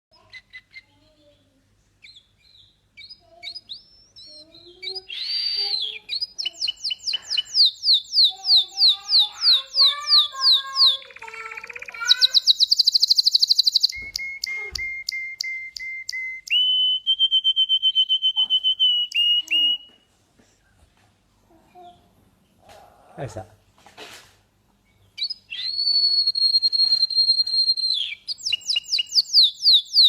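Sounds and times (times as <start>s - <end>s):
canary singing: 0.1s - 20.0s, 24.8s - 30.0s.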